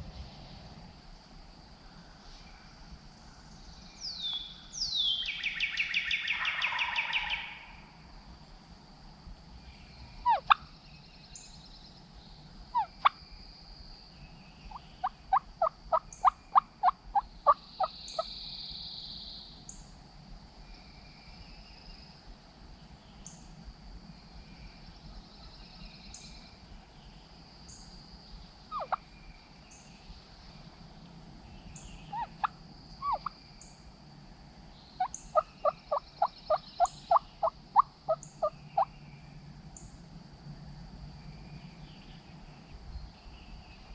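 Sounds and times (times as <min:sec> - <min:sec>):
faint songbird notes: 0:01.6 - 0:08.6, 0:09.5 - 0:43.9
turkey gobbling: 0:10.3 - 0:10.6, 0:28.7 - 0:29.0, 0:32.1 - 0:33.3
turkey yelps: 0:10.3 - 0:10.6, 0:28.7 - 0:29.0, 0:32.1 - 0:33.3
turkey call notes: 0:28.7 - 0:29.0.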